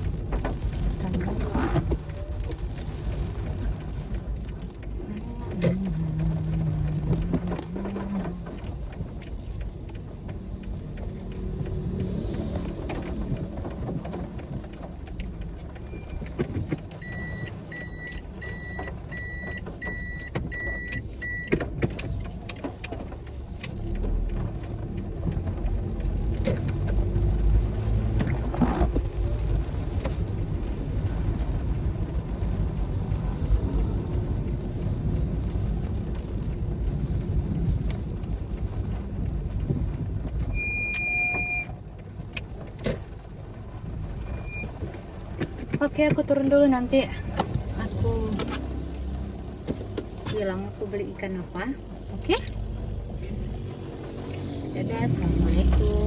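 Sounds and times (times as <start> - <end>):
car engine: 0.0 - 56.0
road rumble: 0.0 - 56.0
short electronic beeps: 40.6 - 41.7, 44.2 - 44.7.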